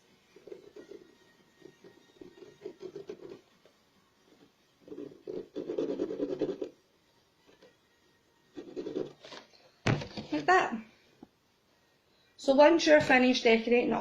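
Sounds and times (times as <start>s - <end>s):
marker scratching on carton: 0.3s - 6.8s, 8.5s - 9.4s.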